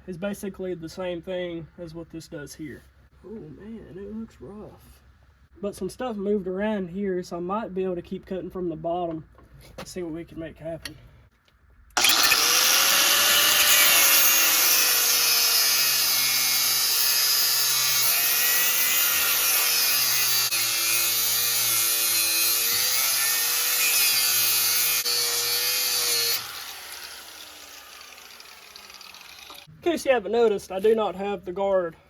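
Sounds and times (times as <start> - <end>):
angle grinder cutting metal: 12.0 - 29.7.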